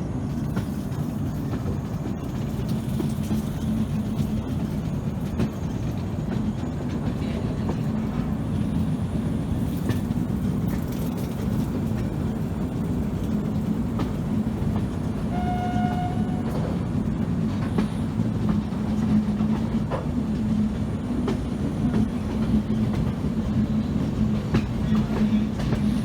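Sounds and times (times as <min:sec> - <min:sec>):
passenger train rumbling: 0:00.0 - 0:26.0
wheels clacking over rail joints: 0:09.6 - 0:26.0.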